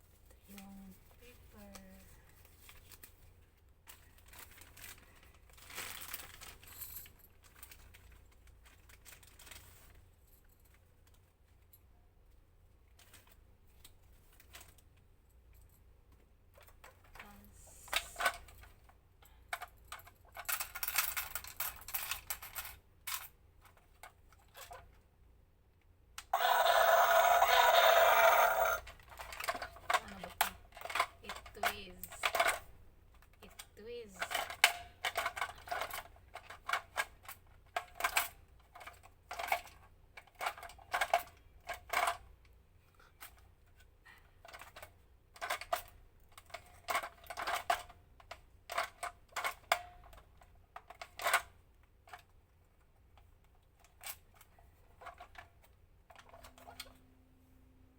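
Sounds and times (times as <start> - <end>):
plastic packaging rustling: 0.2 - 6.8
loud dense toy sound: 26.4 - 28.9
toy clicks: 26.4 - 32.6.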